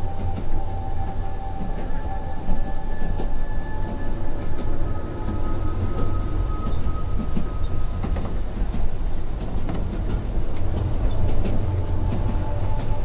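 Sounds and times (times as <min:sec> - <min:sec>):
faint high whine: 0:00.0 - 0:08.6
train rumbling: 0:00.0 - 0:13.0.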